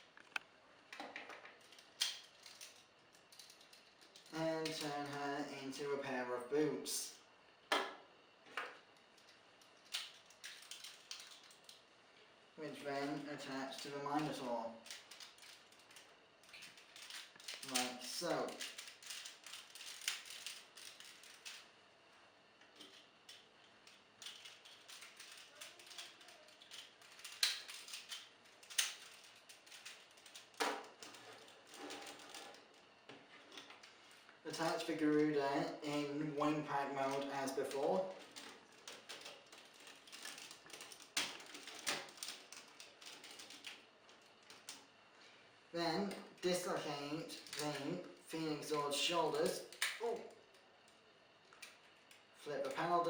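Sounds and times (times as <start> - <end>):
plastic toy parts clicking: 1.0 - 4.8, 9.2 - 11.8, 14.2 - 21.7, 22.8 - 32.6, 37.1 - 44.9, 49.5 - 50.2.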